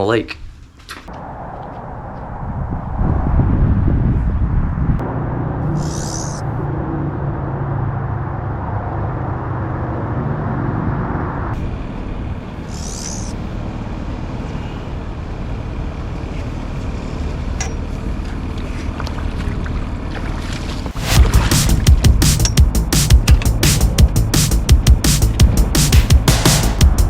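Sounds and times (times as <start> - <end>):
wind rushing: 1.1 - 7.6, 20.9 - 27.0
engine running: 5.0 - 27.0
hissing swishes: 5.7 - 6.6.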